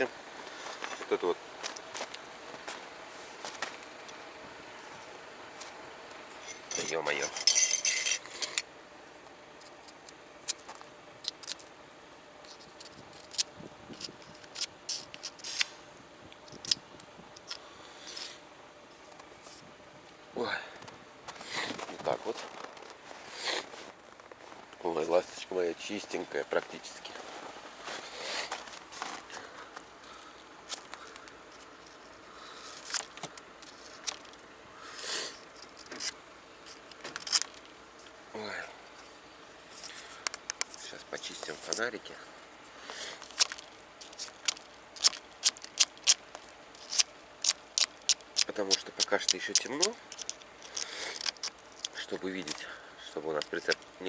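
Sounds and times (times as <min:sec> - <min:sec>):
faint outdoor background: 0:00.0 - 0:54.0
footsteps crunching in snow: 0:00.3 - 0:05.8, 0:21.3 - 0:25.2, 0:26.6 - 0:30.9
sharp clicks or crunches: 0:43.2 - 0:52.6.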